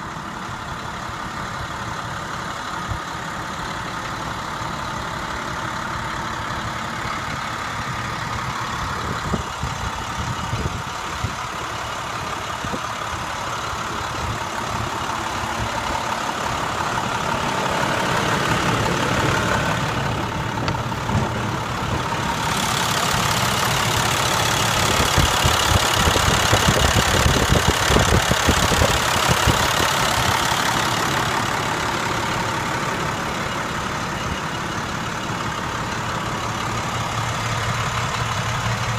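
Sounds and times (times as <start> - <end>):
diesel truck engine idling: 0.0 - 38.9.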